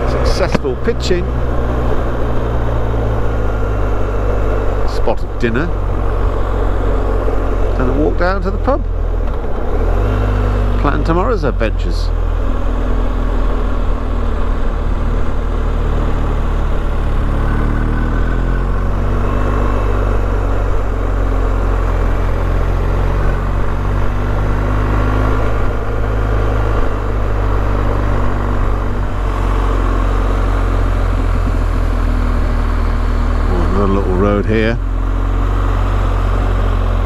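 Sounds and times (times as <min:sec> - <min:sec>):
motorcycle engine running: 0:00.0 - 0:37.0
road noise: 0:00.0 - 0:37.0
wind noise: 0:22.0 - 0:33.3.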